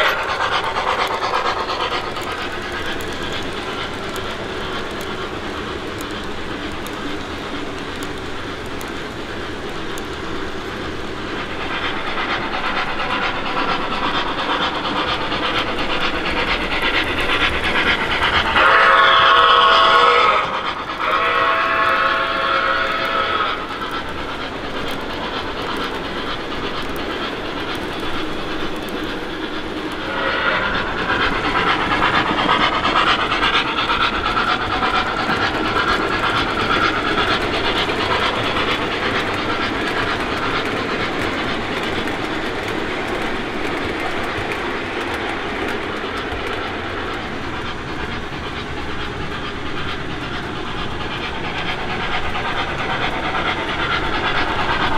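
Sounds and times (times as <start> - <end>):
model train running on rails: 0.0 - 54.9
steam locomotive chime whistle: 18.6 - 23.6, 30.1 - 30.8.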